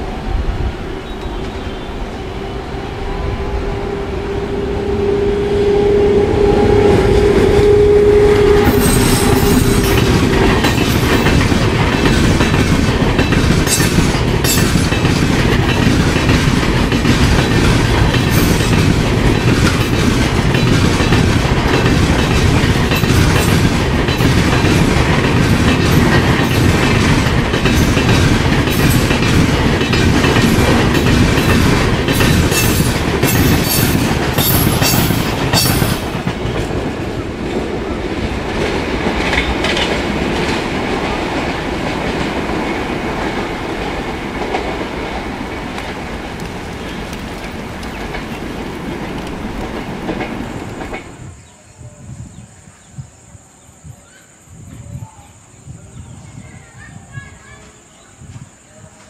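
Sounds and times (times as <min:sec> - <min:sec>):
passing train rumble: 0:00.0 - 0:59.0
locomotive horn: 0:00.9 - 0:10.3
wheels clacking over rail joints: 0:08.4 - 0:51.2.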